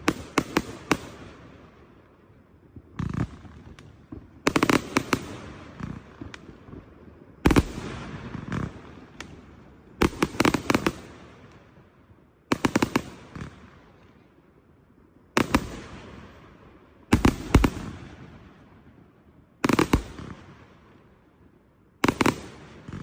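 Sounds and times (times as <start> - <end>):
fireworks bangs: 2.6 - 11.7, 15.4 - 19.0, 19.6 - 23.0.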